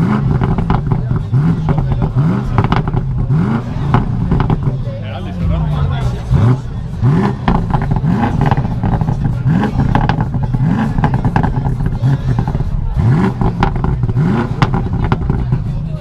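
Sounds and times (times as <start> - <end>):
car engine revving: 0.0 - 16.0
exhaust crackles: 0.0 - 16.0.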